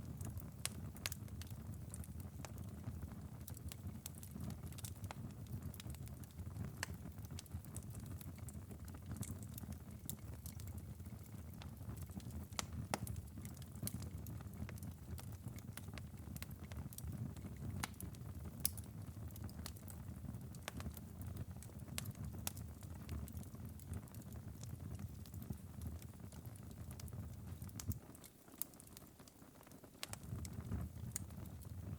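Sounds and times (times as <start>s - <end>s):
wood fire crackling: 0.0s - 31.9s
sharp pops and snaps: 9.2s - 31.9s.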